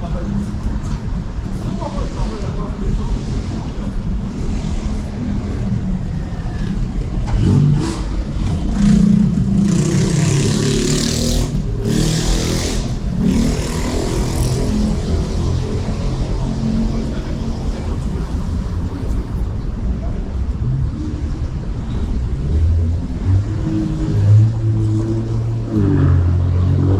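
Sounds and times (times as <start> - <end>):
traffic rumble: 0.0 - 26.9
vehicle revving past: 7.2 - 18.2.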